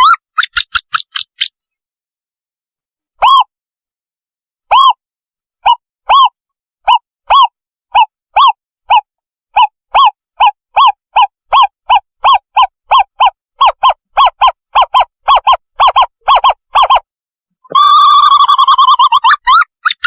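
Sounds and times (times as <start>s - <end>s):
owl bubbling trill: 17.7s - 20.0s.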